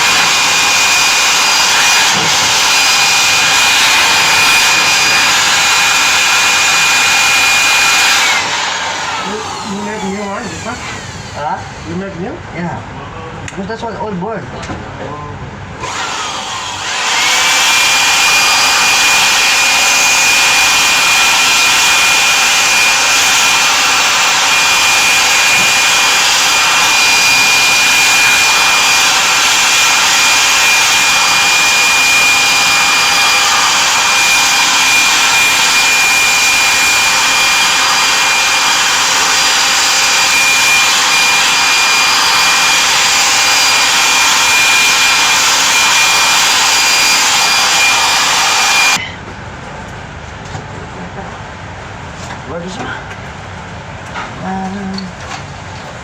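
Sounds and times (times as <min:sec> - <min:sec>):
high-speed blower motor whine: 0:00.0 - 0:12.4, 0:15.7 - 0:49.1.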